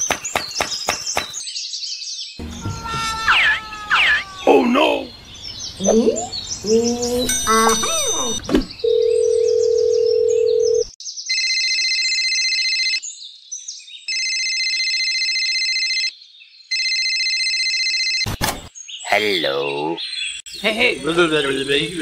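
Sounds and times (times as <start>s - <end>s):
electronic telephone ringing: 7.6s - 13.0s, 14.1s - 16.1s, 16.7s - 18.3s
telephone dial tone: 8.9s - 10.9s.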